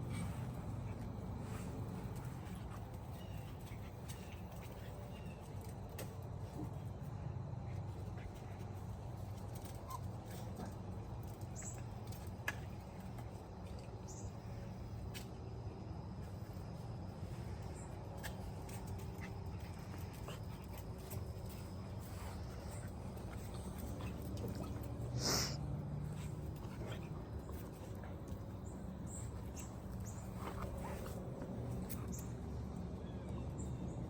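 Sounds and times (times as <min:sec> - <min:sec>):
dogs scuffling: 0:17.2 - 0:32.6.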